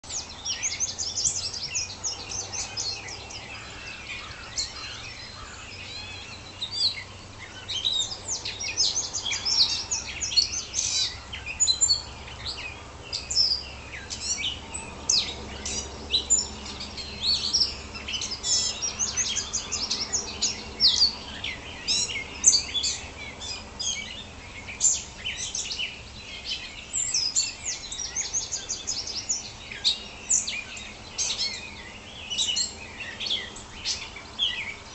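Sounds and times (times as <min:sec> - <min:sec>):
songbirds singing: 0:00.0 - 0:34.9.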